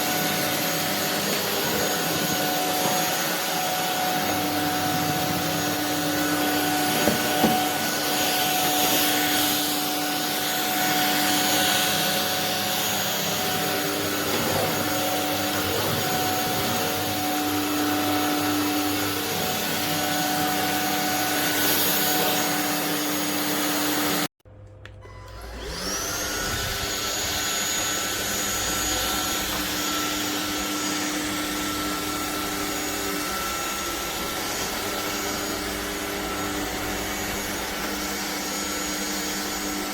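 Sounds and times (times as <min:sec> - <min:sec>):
stick vacuum motor whine: 0:00.0 - 0:39.9.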